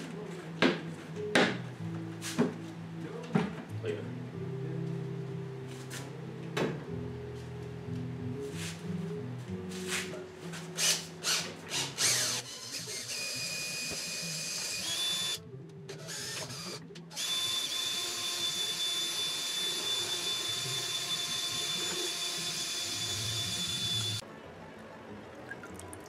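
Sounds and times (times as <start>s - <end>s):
power tool motor whining: 10.8s - 24.2s.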